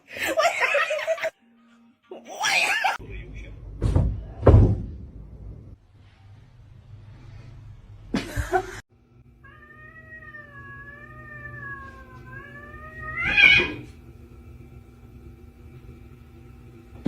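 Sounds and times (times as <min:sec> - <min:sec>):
cat yowling: 0:09.4 - 0:13.9.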